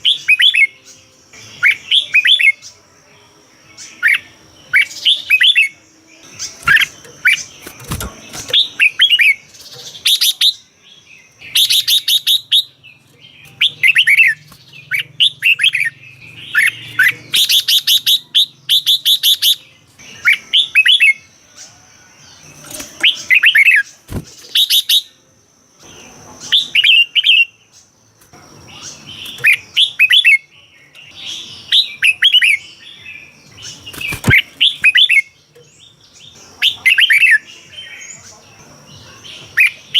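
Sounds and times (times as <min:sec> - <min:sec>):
bird singing whistled phrases: 0:00.0 - 0:00.8, 0:01.4 - 0:02.6, 0:04.0 - 0:05.8, 0:11.4 - 0:12.8, 0:13.4 - 0:21.3, 0:23.0 - 0:23.9, 0:26.5 - 0:27.6, 0:28.8 - 0:33.4, 0:34.0 - 0:35.4, 0:36.6 - 0:38.0
harsh rattling bird calls: 0:00.0 - 0:02.8, 0:03.6 - 0:39.9.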